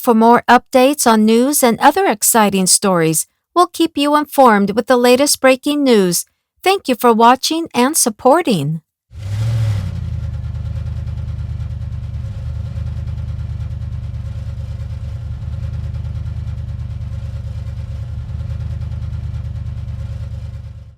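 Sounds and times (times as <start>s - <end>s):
low engine drone: 9.2s - 20.9s.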